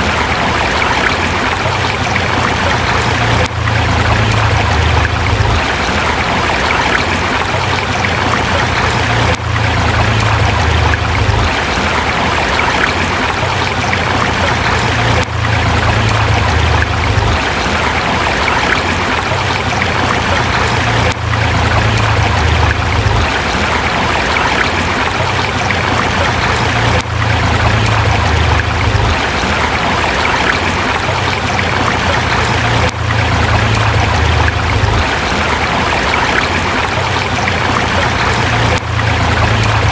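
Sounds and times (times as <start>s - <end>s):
river flowing over rocks: 0.0s - 39.9s
low rumble: 2.3s - 13.1s, 13.7s - 18.8s, 19.6s - 24.8s, 25.5s - 30.7s.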